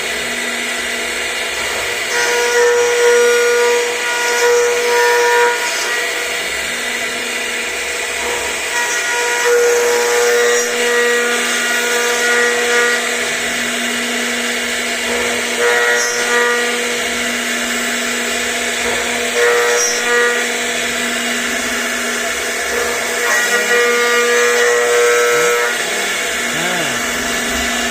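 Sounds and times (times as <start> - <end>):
router spindle cutting with high whine: 0.0 - 27.9.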